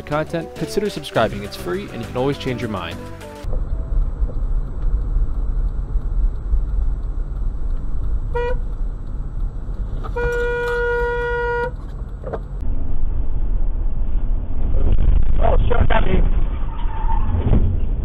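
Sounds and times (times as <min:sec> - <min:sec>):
road rumble from moving vehicle: 0:00.0 - 0:18.0
car horn honking: 0:08.3 - 0:08.6, 0:10.0 - 0:11.8.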